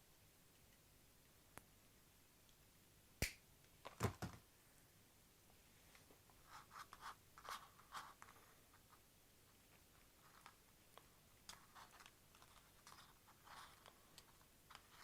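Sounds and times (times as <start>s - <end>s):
soft rustling: 5.5s - 15.0s.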